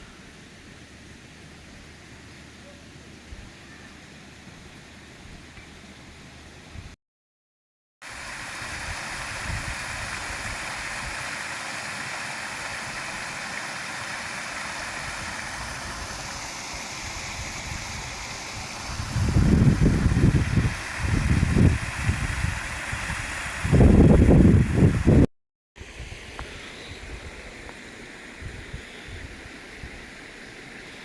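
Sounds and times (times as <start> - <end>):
running water: 8.0 - 28.6.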